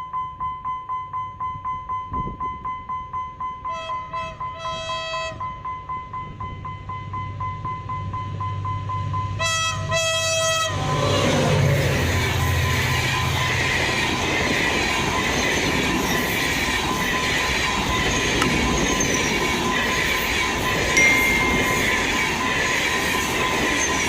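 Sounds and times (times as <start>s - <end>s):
train wheels rumbling on rails: 6.0s - 24.0s
brief loud high tone: 21.0s - 22.5s.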